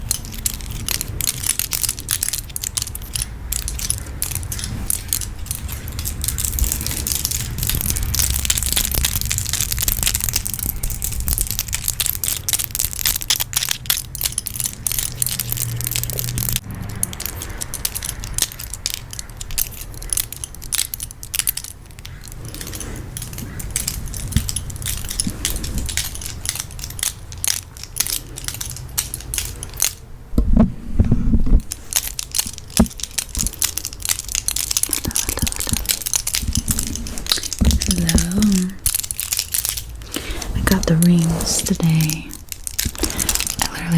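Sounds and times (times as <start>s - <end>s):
rings and cards clicking and tapping: 0.0s - 43.9s
steady low rumble: 0.0s - 43.9s.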